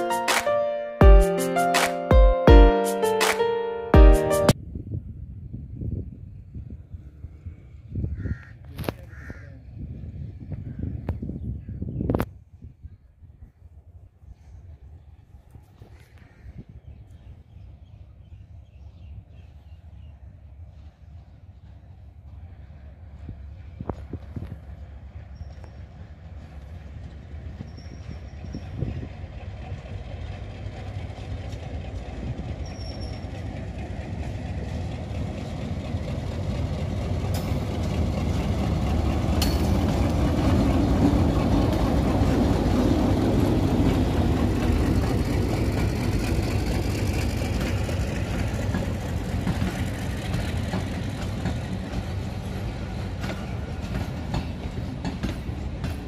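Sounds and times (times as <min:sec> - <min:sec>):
diesel locomotive engine rumble: 0:00.0 - 0:56.0
train wheels clicking over track: 0:23.2 - 0:56.0.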